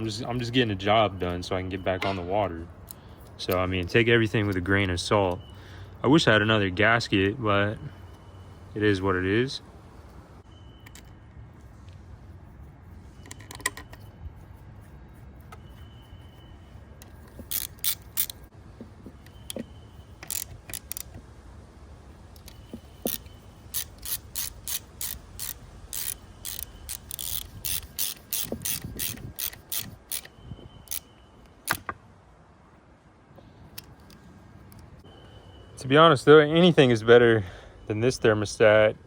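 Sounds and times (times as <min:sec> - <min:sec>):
ratchet wrench clicking: 0:17.0 - 0:18.5, 0:20.2 - 0:21.2, 0:22.4 - 0:31.1.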